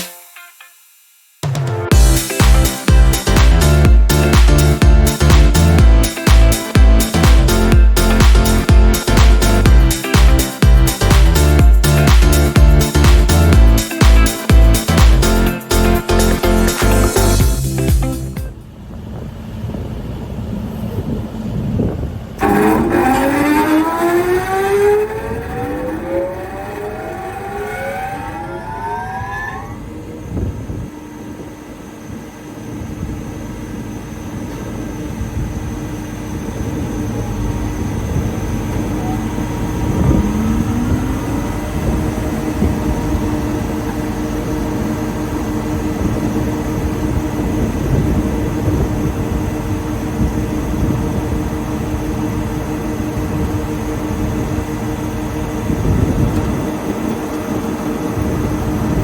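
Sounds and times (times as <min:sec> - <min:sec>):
planer motor whine and hum: 0:22.4 - 0:59.0.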